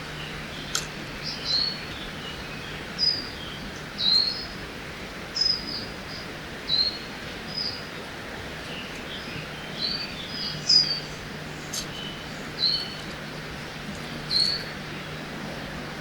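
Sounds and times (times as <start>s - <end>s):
forest birds chirping: 0.0s - 4.6s, 5.3s - 16.0s
river water rushing: 0.0s - 16.0s.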